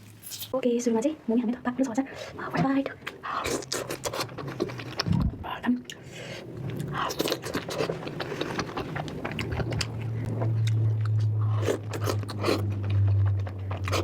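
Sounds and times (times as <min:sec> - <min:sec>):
low steady hum: 0:00.0 - 0:14.0
person chewing crunchy food: 0:03.1 - 0:05.2, 0:05.9 - 0:14.0.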